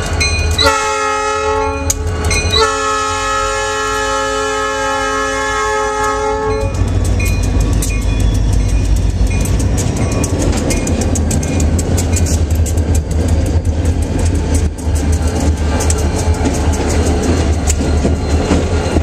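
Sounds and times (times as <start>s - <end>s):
locomotives rumbling past: 0.0s - 19.0s
locomotive air horn: 0.6s - 6.8s
wheels clicking over rail joints: 5.2s - 19.0s.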